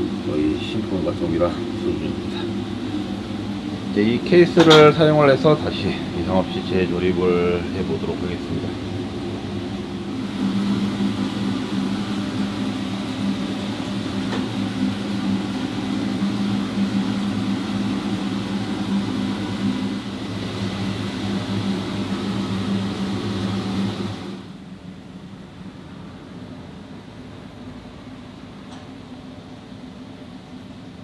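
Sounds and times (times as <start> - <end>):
car engine humming: 0.0 - 24.4.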